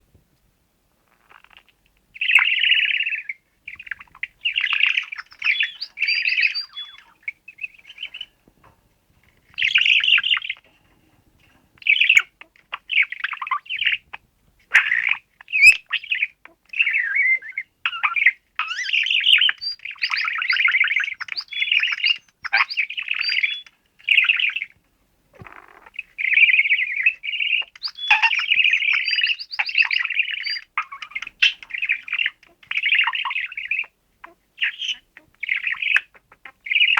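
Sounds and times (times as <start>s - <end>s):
budgerigar chirping: 2.2s - 8.3s, 9.5s - 10.7s, 11.8s - 14.1s, 14.7s - 24.7s, 25.4s - 36.9s
electronic toy bird chirping: 5.2s - 7.1s, 16.8s - 24.6s, 27.3s - 33.9s.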